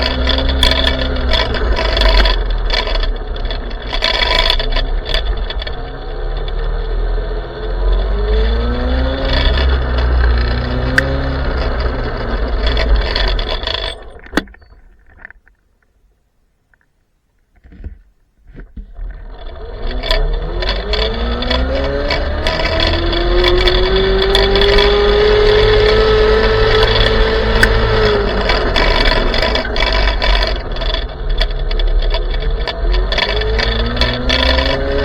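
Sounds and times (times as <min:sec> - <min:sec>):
electric motor whine accelerating: 0:00.0 - 0:14.0, 0:19.2 - 0:35.0
clicks: 0:07.8 - 0:16.0, 0:16.6 - 0:35.0.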